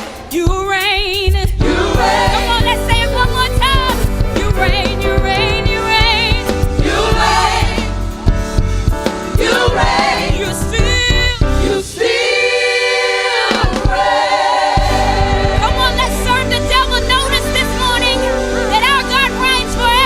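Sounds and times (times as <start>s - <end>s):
live band playing: 0.0s - 11.8s, 14.8s - 20.0s
gospel choir singing: 1.6s - 8.3s, 9.2s - 18.8s.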